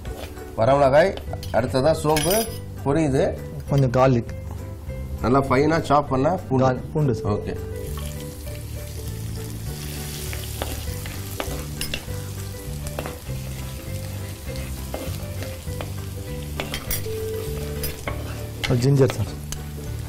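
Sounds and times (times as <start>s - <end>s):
spices sizzling in hot oil: 7.7s - 20.0s.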